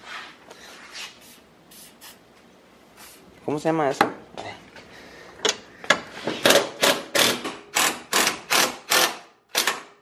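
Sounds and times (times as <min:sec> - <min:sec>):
aerosol can hissing bursts: 0:01.2 - 0:02.2.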